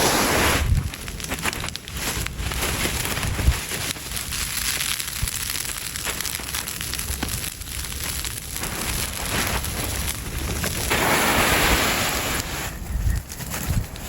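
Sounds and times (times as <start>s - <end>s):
wind rumble on microphone: 0.0s - 4.0s, 8.6s - 14.0s
crackling and rustling: 0.0s - 14.0s.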